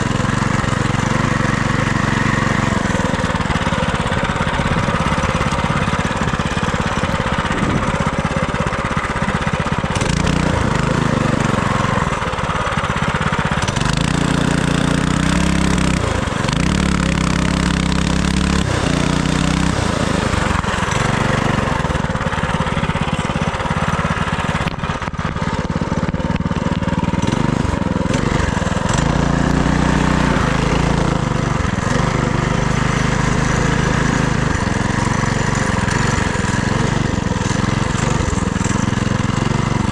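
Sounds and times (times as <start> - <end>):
minibike engine revving: 0.0 - 39.9
wind rush on microphone: 7.4 - 8.0.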